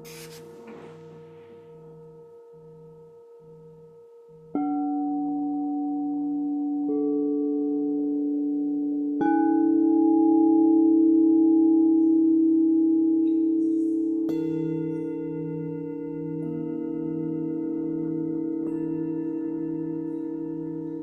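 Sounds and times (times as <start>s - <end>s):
singing bowls ringing: 0.0s - 21.0s.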